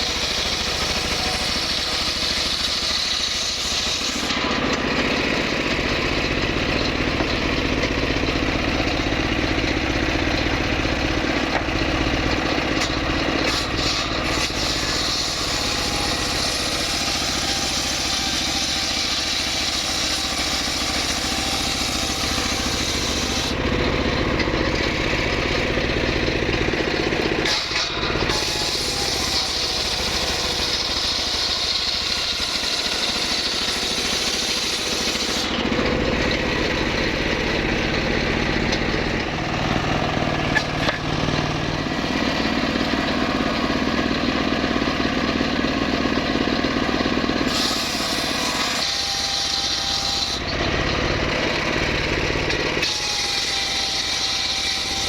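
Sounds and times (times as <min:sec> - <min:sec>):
saw petrol engine running: 0:00.0 - 0:55.0.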